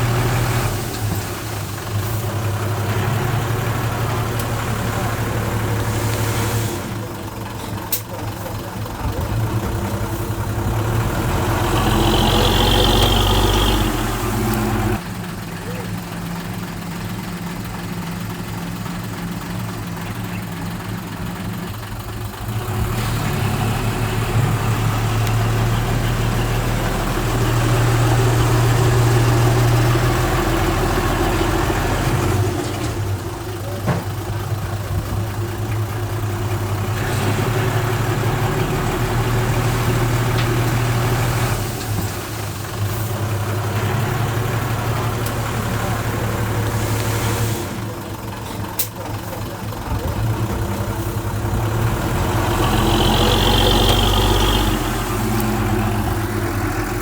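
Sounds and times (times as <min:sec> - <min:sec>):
diesel engine droning: 0:00.0 - 0:57.0.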